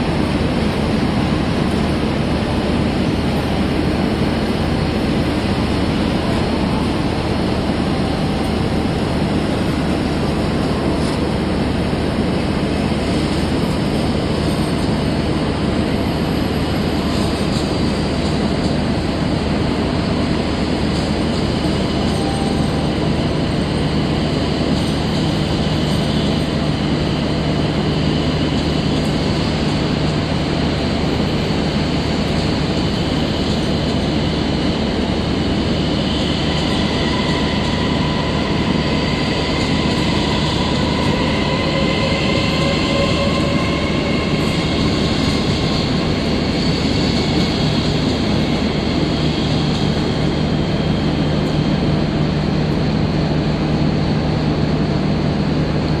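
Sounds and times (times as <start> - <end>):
train wheels rumbling on rail: 0.0 - 56.0
faint rising whine: 34.1 - 48.9.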